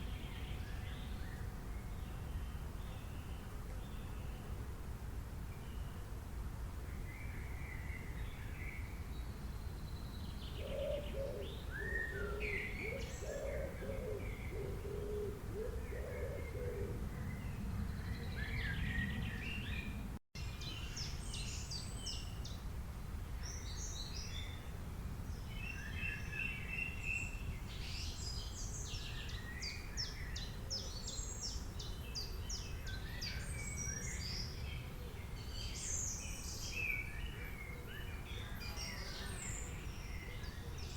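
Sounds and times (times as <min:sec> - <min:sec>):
low background noise: 0:00.0 - 0:40.9
birds chirping and trilling: 0:07.2 - 0:22.6, 0:25.3 - 0:40.9
low bird calls: 0:10.5 - 0:20.0.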